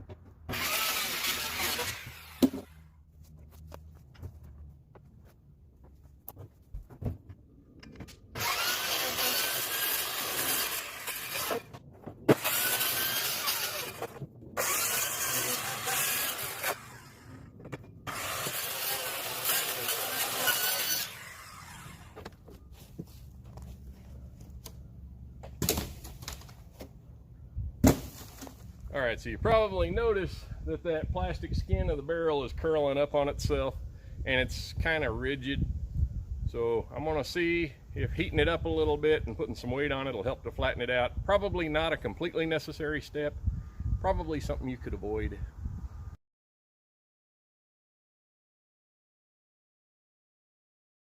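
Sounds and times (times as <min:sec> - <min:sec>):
loud power tool running: 0:00.5 - 0:02.9, 0:08.3 - 0:11.7, 0:12.3 - 0:22.4
tool handling knocks and clicks: 0:05.8 - 0:08.4, 0:17.6 - 0:18.0.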